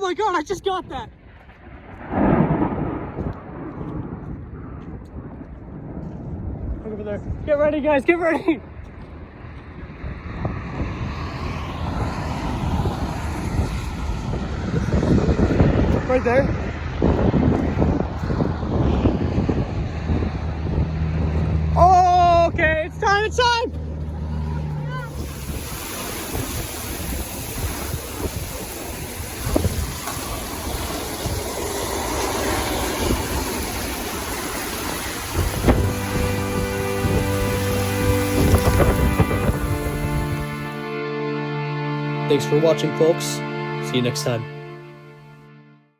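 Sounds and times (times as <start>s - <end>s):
rushing wind: 0.0s - 41.1s
low rumble: 1.1s - 45.4s
heavy rain: 24.3s - 40.9s.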